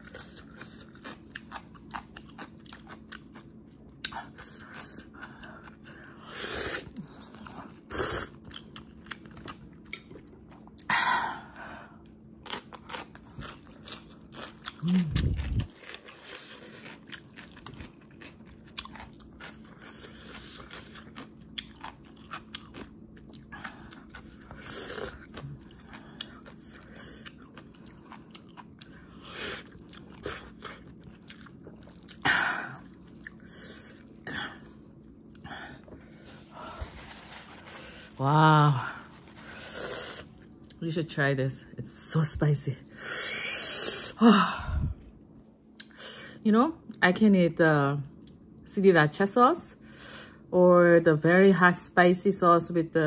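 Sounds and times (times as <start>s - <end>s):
chewing noodles: 0.0s - 10.9s, 12.0s - 38.2s.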